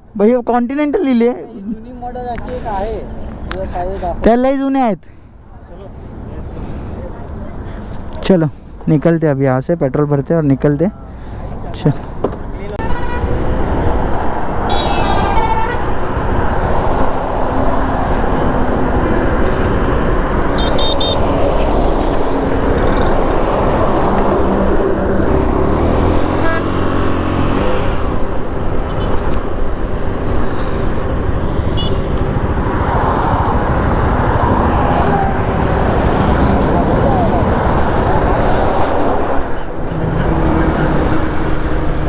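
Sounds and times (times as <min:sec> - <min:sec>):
vehicle horns beeping: 0:12.8 - 0:13.4, 0:14.7 - 0:15.9, 0:20.6 - 0:21.3, 0:26.3 - 0:26.8, 0:30.8 - 0:32.9
motorcycle engine and wind: 0:13.0 - 0:42.0.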